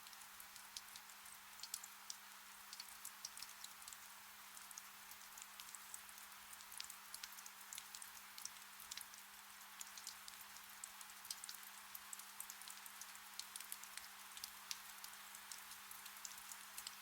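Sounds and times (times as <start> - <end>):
raindrop ticks: 0.0 - 9.2, 9.8 - 17.0
gentle rain hiss: 0.0 - 17.0.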